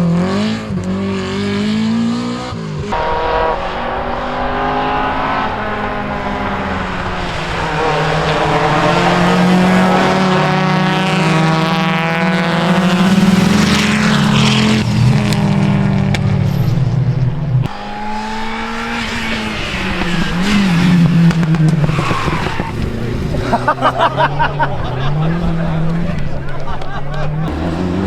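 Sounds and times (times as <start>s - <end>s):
rally car engine running hard: 0.0s - 28.0s.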